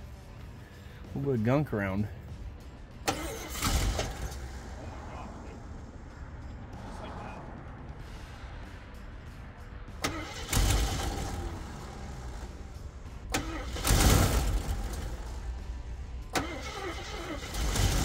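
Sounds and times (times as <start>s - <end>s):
engine cranking over: 3.0s - 4.8s, 10.0s - 18.0s.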